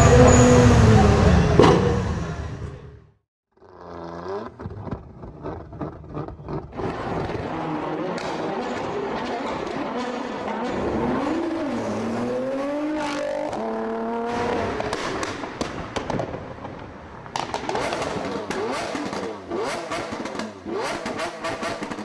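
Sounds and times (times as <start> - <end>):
car engines revving: 0.0 - 3.1, 3.8 - 22.0
exhaust pops and crackles: 3.8 - 10.2, 14.6 - 22.0.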